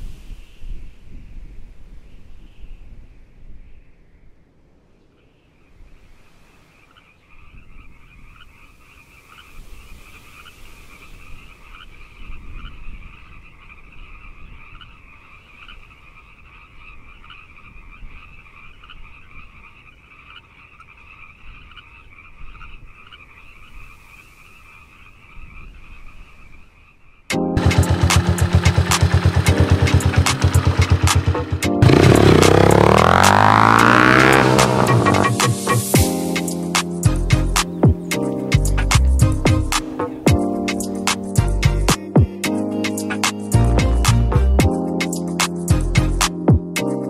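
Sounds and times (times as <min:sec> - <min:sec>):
frogs chirping in chorus: 0:06.7 - 0:27.3.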